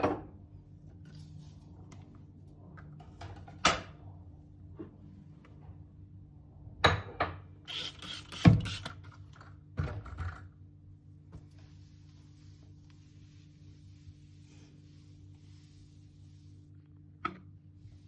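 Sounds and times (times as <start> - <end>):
steady low hum: 7.6 - 18.0
objects knocking and clattering: 8.5 - 10.5.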